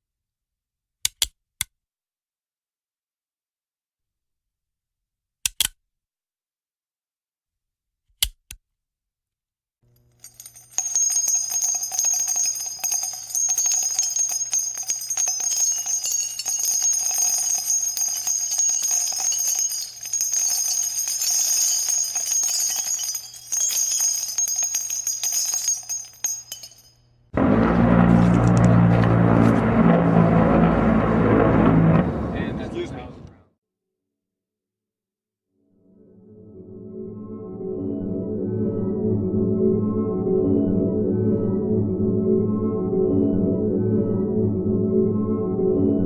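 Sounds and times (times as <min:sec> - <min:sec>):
small bells jingling: 0:10.1 - 0:27.0
deep loud sound: 0:27.4 - 0:33.3.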